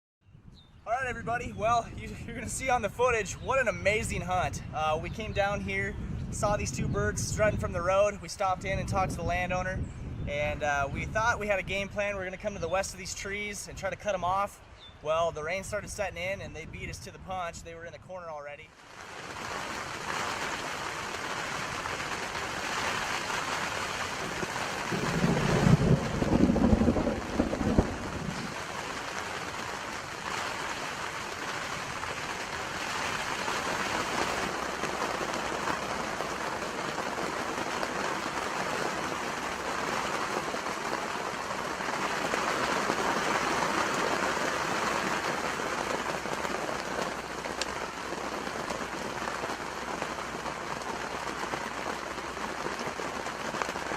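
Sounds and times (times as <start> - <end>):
steady rain hiss: 10.0 - 17.6, 18.6 - 53.9
low rumble: 24.9 - 28.6.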